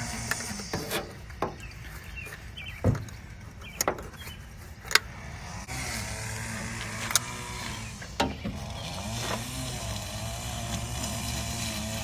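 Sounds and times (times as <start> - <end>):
sharp knocks: 2.8 - 3.1.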